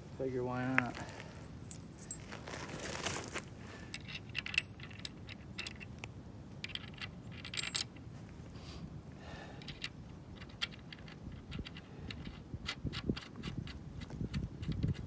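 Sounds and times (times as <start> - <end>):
metallic clinks of bolt hardware: 3.9 - 6.0, 6.6 - 8.0.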